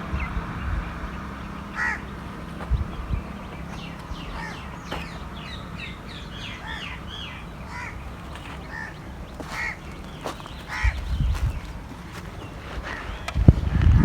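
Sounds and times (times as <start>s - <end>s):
birds calling: 0.0s - 14.0s
low steady hum: 0.0s - 14.0s.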